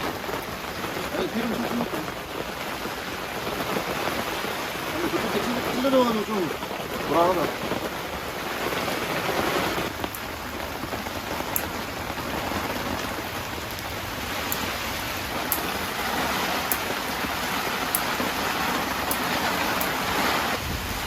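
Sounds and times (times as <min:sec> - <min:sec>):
heavy rain on a tent: 0:00.0 - 0:21.0
single raindrop ticks: 0:11.5 - 0:11.8, 0:13.6 - 0:14.8, 0:15.4 - 0:15.9, 0:16.6 - 0:17.0, 0:19.0 - 0:20.0.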